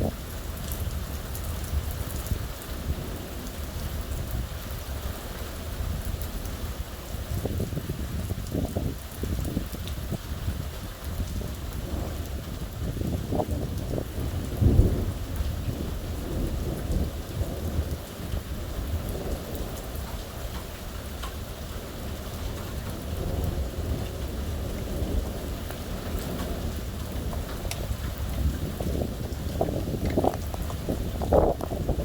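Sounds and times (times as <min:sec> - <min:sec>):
steady rain: 0:00.0 - 0:32.0
rolling thunder: 0:07.4 - 0:32.0.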